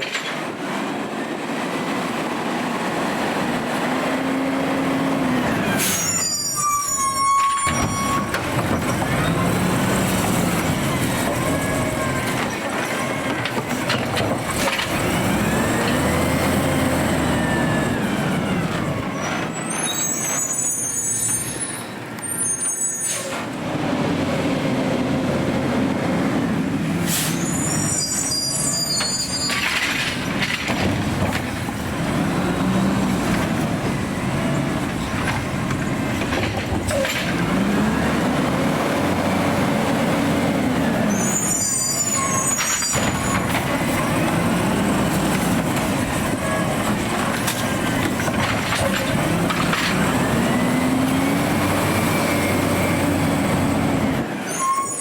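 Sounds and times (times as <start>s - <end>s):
air brake hisses: 5.8s - 6.4s, 27.0s - 28.2s
short high-pitched squeals: 5.8s - 8.4s, 19.5s - 23.4s, 27.2s - 29.8s, 41.1s - 43.4s, 54.4s - 55.0s
garbage truck engine revving: 8.3s - 20.4s, 23.4s - 54.5s.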